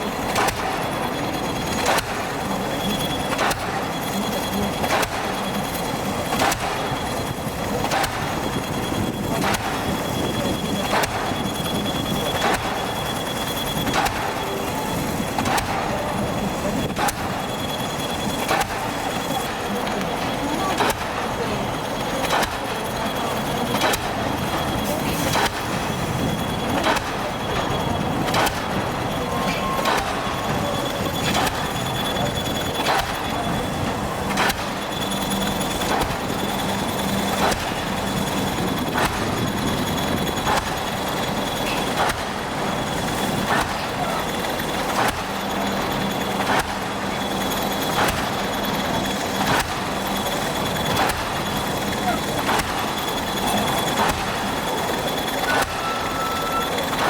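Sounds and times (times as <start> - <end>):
machine engine running: 0.0 - 57.0
pile-driving hammer striking: 28.3 - 28.8, 29.5 - 30.6, 34.3 - 34.8, 43.4 - 43.9, 49.4 - 49.9, 52.0 - 53.0.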